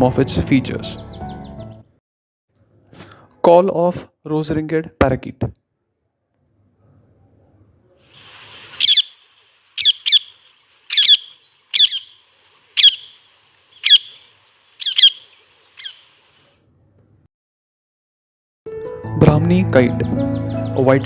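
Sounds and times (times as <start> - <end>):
parakeet screeching: 8.7 - 9.2, 9.8 - 12.2, 12.8 - 16.1.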